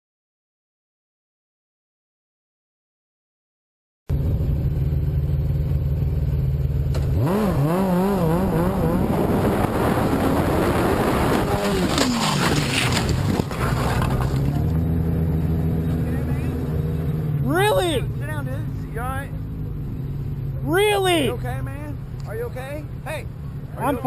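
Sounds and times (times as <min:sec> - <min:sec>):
vehicle engine and road noise: 0:04.1 - 0:24.0.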